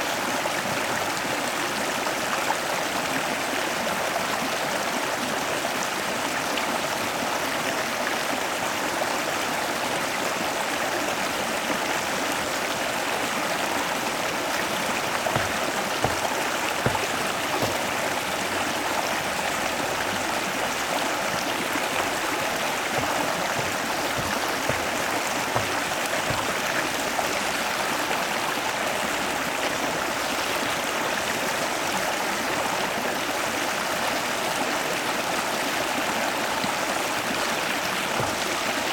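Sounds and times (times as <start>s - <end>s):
stream rushing: 13.6s - 30.8s
soft low knocks: 15.3s - 20.4s, 21.3s - 27.3s.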